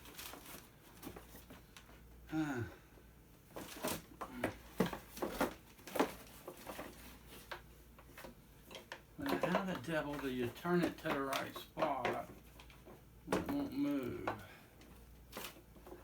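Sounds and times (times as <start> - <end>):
short falling vocal sound: 13.5 - 14.4.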